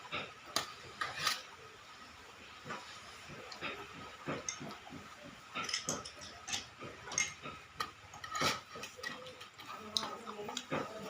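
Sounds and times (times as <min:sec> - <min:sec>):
utensils clinking against bowl: 0:03.4 - 0:04.9, 0:05.5 - 0:11.0.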